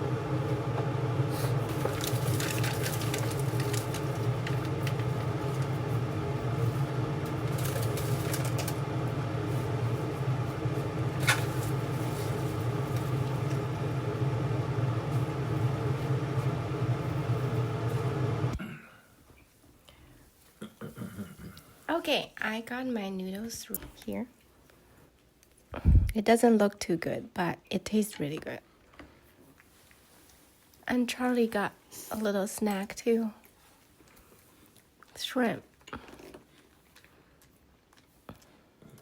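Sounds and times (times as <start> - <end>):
appliance motor humming: 0.0 - 18.6.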